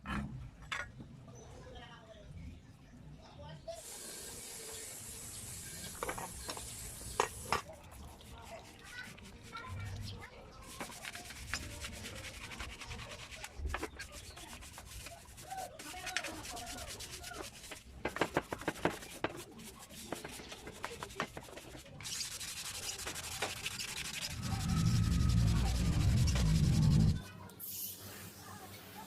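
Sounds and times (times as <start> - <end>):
sandpaper rubbing on metal: 4.5 - 27.3
low rumble: 24.2 - 27.3.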